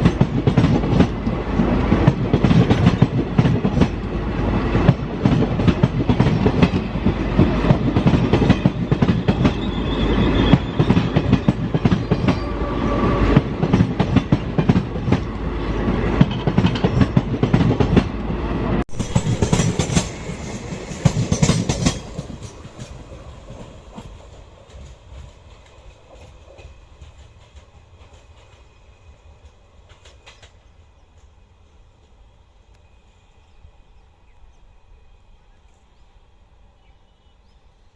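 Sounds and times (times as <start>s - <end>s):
train wheels clattering over rails: 0.0s - 12.5s, 13.2s - 15.3s, 15.9s - 18.2s, 18.8s - 31.4s.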